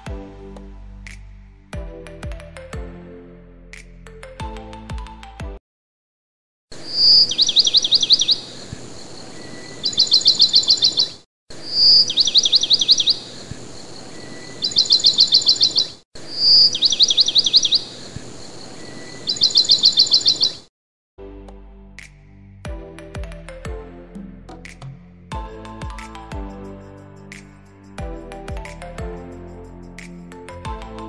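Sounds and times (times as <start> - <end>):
songbird singing: 6.7 - 20.7.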